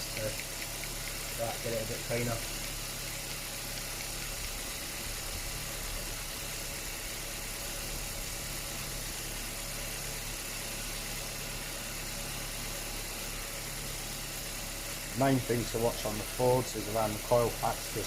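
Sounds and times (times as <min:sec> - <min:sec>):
car engine idling: 0:00.0 - 0:18.0
steam cleaner hiss: 0:00.0 - 0:18.0.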